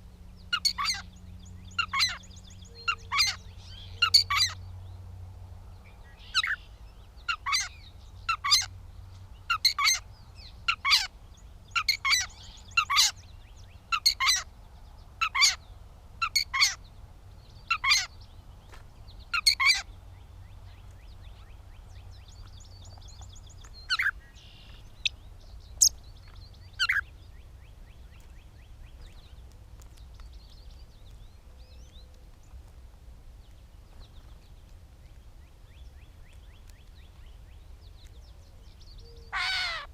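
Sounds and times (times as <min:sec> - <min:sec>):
bird giving sharp calls: 0:00.5 - 0:01.1, 0:39.3 - 0:39.9
faint bird twittering: 0:05.7 - 0:32.6.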